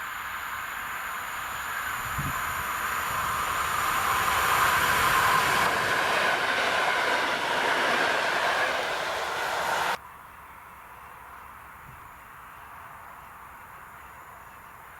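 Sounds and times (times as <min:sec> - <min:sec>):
train passing close by: 0:00.0 - 0:10.0.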